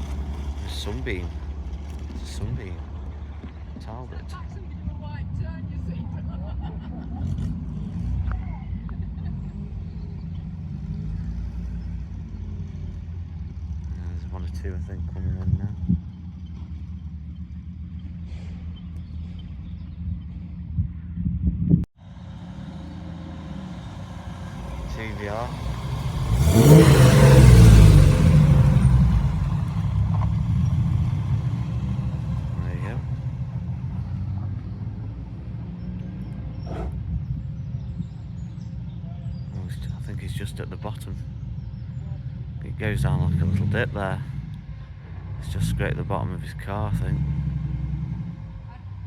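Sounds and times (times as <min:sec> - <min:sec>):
car engine rumbling: 0:00.0 - 0:49.0
sports car engine revving past: 0:22.0 - 0:38.2, 0:46.9 - 0:49.0.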